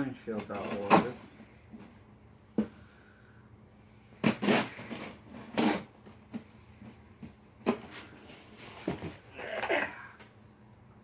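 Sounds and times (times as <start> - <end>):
packaging rustling and scraping: 4.2 - 9.3.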